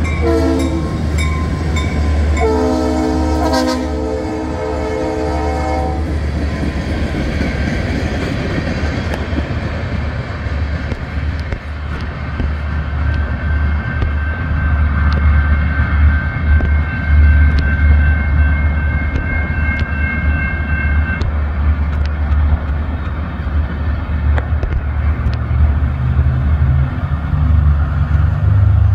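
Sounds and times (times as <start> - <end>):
crossing warning bell ringing: 0.0 - 6.2, 13.0 - 22.1
freight train rumbling: 0.0 - 28.9
train wheels clicking: 6.0 - 28.9
road vehicle engine: 21.2 - 28.9.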